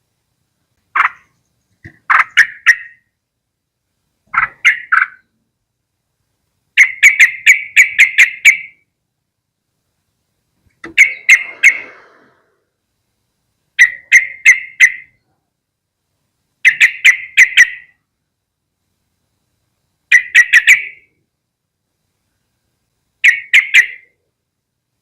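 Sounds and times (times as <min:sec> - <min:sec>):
bird chattering calls: 0:01.0 - 0:03.1, 0:04.3 - 0:05.3, 0:06.8 - 0:08.8, 0:10.8 - 0:12.4, 0:13.8 - 0:15.2, 0:16.6 - 0:18.0, 0:20.1 - 0:21.1, 0:23.2 - 0:24.1.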